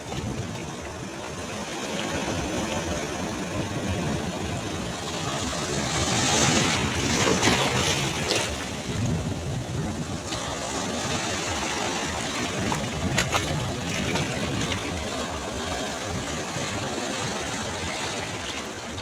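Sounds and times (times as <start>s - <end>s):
sea waves breaking: 0.0s - 19.0s.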